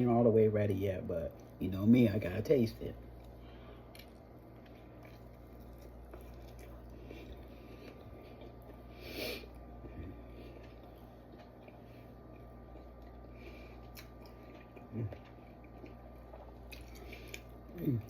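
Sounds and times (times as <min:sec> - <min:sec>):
soft wet chewing: 0:03.0 - 0:18.0.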